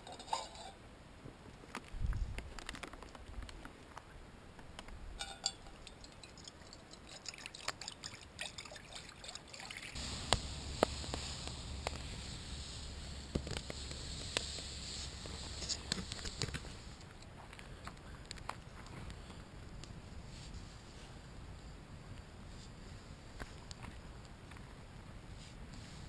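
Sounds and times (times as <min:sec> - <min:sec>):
campfire crackling and popping: 0:01.6 - 0:04.0, 0:10.0 - 0:20.0
steady hiss: 0:10.0 - 0:18.2, 0:19.0 - 0:26.0.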